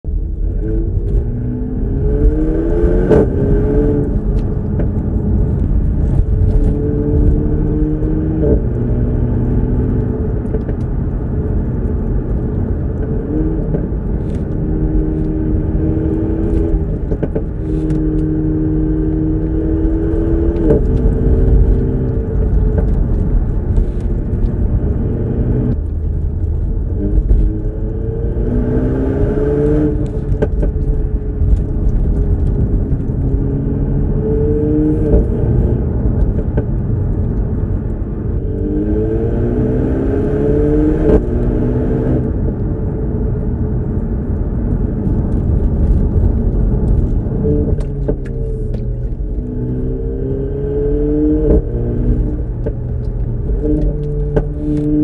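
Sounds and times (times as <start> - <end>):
low road rumble: 0.0 - 55.0
car engine revving hard: 1.2 - 4.2, 27.0 - 30.4, 38.5 - 42.3.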